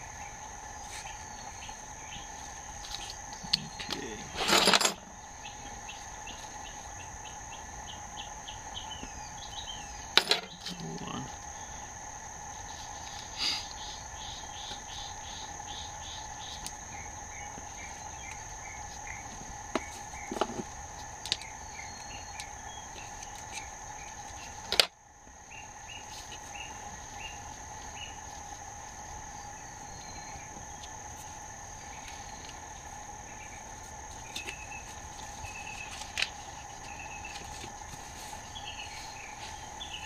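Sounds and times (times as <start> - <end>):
insect chorus trilling: 0.0 - 40.0
short insect chirps: 0.0 - 40.0.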